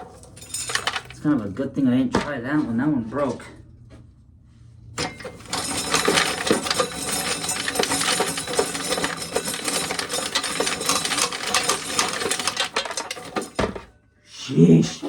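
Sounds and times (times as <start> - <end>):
corn sheller rattling: 0.0 - 1.4, 5.0 - 13.9, 14.6 - 15.0.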